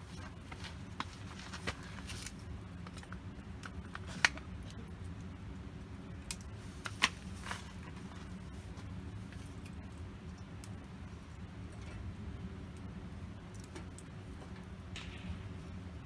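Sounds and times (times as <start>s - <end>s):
campfire wood crackling: 0.0s - 16.0s
sharp pops of fire: 14.9s - 16.0s.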